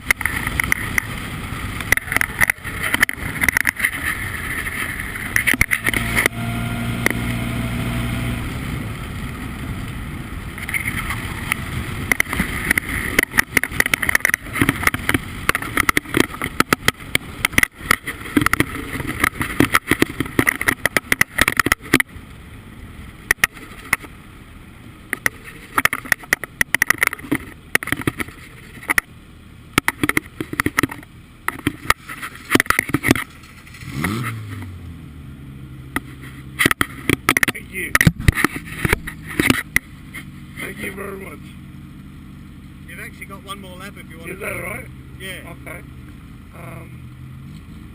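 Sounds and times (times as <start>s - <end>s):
race car engine running: 0.0s - 47.9s.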